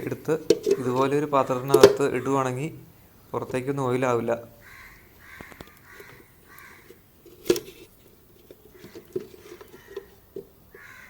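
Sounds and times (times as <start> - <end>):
crow cawing: 4.6 - 7.0, 8.7 - 10.1, 10.7 - 11.0.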